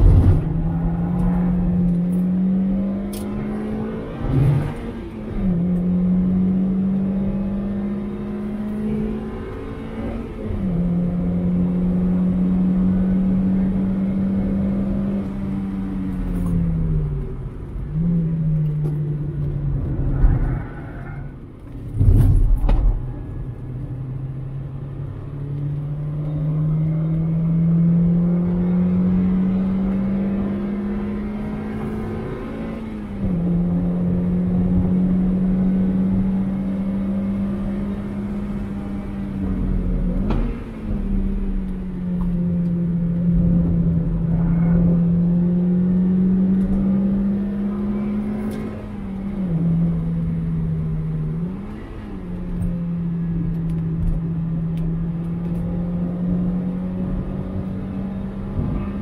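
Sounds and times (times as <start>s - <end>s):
loud engine rumbles: 0.0s - 6.8s, 26.1s - 59.0s
car engine revving: 0.0s - 59.0s.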